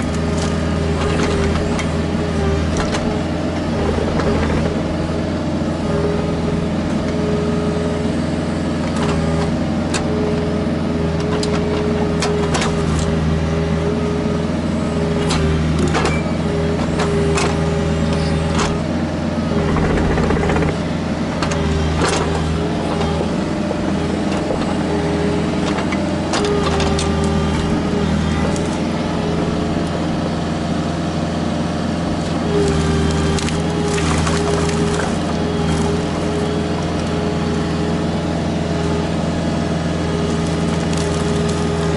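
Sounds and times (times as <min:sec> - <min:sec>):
diesel engine running: 0:00.0 - 0:41.9
hydraulic whine: 0:15.0 - 0:30.5.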